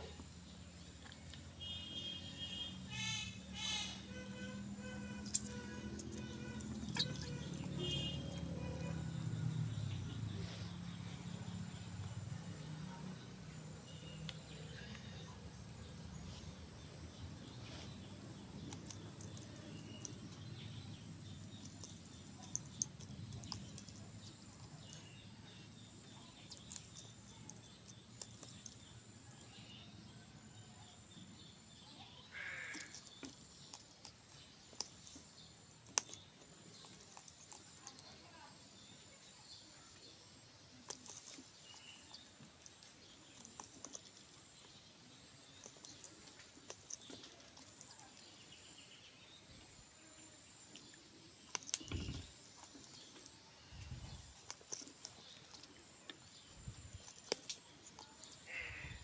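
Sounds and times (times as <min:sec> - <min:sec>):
insects droning: 0:00.0 - 0:33.6, 0:44.2 - 0:59.0
outdoor background noise: 0:00.0 - 0:59.0.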